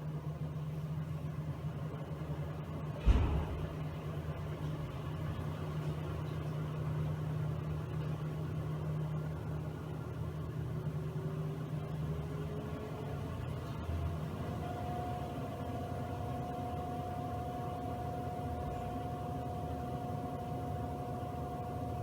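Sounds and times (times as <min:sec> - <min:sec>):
washing machine motor hum: 0:00.0 - 0:22.0
thump: 0:03.0 - 0:03.9.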